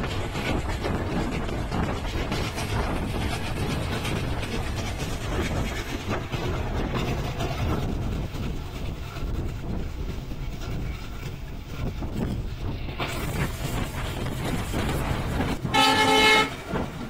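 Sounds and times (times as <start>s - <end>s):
train rumbling: 0.0s - 17.0s
wheels clacking over rail joints: 0.0s - 17.0s.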